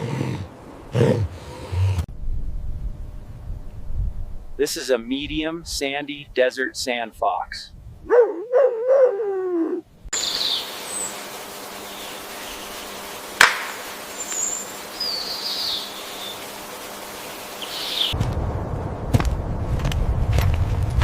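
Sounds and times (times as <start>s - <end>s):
low rumbling noise: 1.8s - 4.6s, 18.1s - 21.0s
outdoor hiss: 10.1s - 18.2s
faint high bird chirps: 10.2s - 11.2s, 14.1s - 16.4s.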